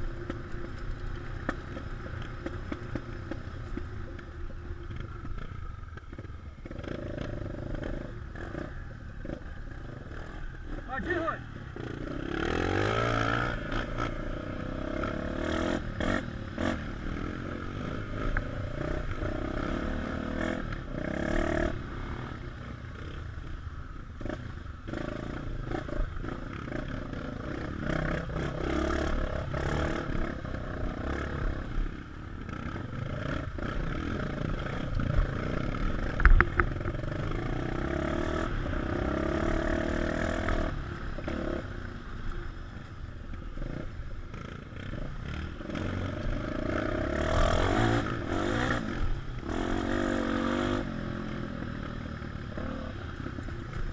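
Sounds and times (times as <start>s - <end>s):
clattering and scraping on rough trail: 0.0s - 14.2s, 32.5s - 37.6s
dirt bike engine revving: 6.2s - 22.3s, 24.2s - 41.6s, 43.6s - 53.4s.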